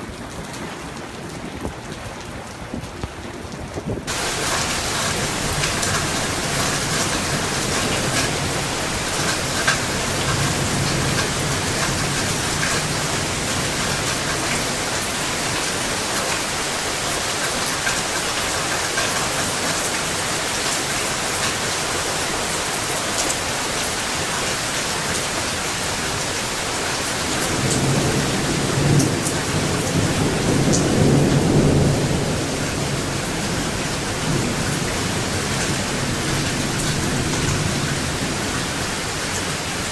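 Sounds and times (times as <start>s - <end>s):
heavy rain: 0.0s - 39.9s
thunder rumbling: 4.0s - 20.5s, 26.9s - 39.9s.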